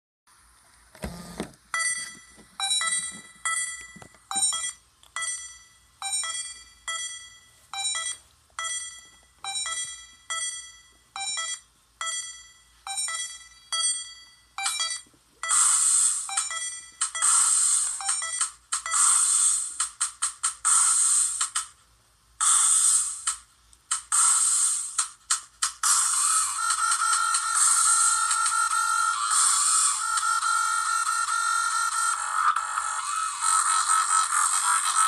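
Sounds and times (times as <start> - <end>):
electronic loop music with synth beeps: 14.6 - 20.0, 25.8 - 35.0.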